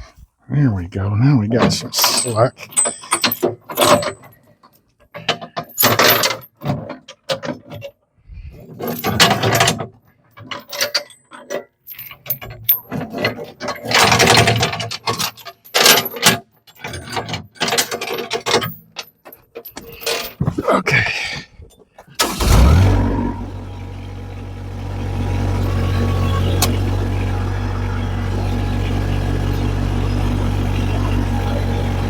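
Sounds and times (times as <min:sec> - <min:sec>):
metallic clanking and rattling: 0:01.7 - 0:04.4, 0:22.1 - 0:32.0.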